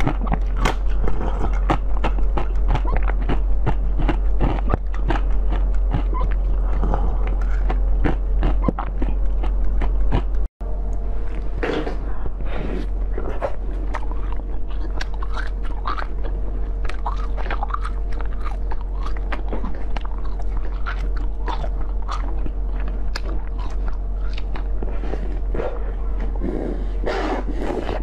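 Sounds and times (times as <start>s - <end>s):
wet chewing and smacking: 0.0s - 10.5s, 13.4s - 26.4s.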